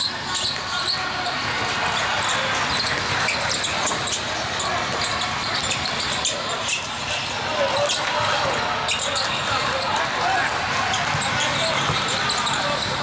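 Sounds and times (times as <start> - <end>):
hubbub of players and spectators: 0.0 - 13.0
basketball bouncing on floor: 11.0 - 12.2.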